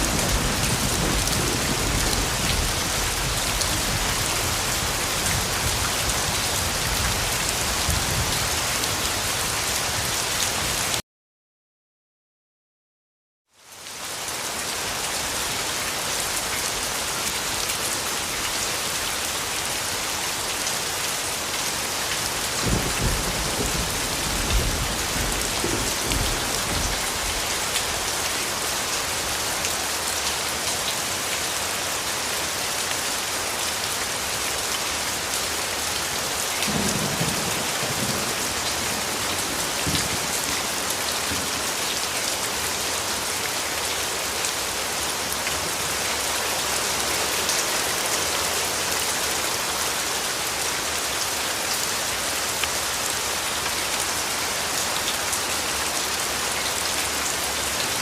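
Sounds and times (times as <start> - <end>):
low rolls of thunder: 0.0 - 3.2, 22.6 - 27.0, 36.7 - 40.3
steady rain falling: 0.0 - 11.0, 13.5 - 58.0.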